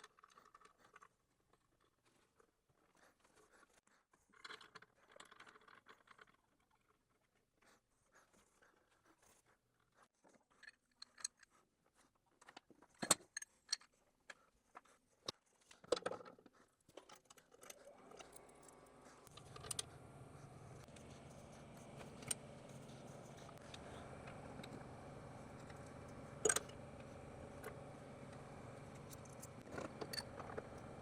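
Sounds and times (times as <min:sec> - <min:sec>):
bench grinder motor humming: 0:17.9 - 0:31.0.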